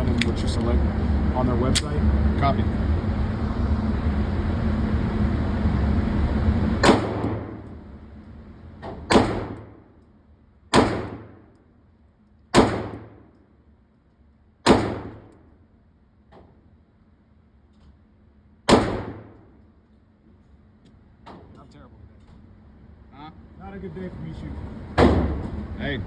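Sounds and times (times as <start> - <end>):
steady rumble: 0.0 - 26.0
faint distant gunshot: 9.1 - 9.7, 10.7 - 11.4, 18.7 - 19.4
pistol shots echoing: 10.7 - 11.4, 12.6 - 13.2, 14.7 - 15.3, 18.7 - 19.4.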